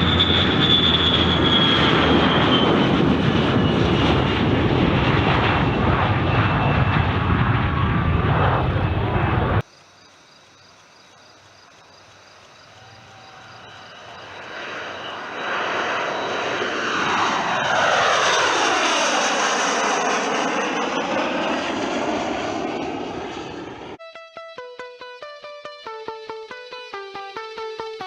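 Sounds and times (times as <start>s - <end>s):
drone jet engine whine: 0.0s - 9.6s, 12.4s - 28.0s
guitar music: 24.0s - 28.0s.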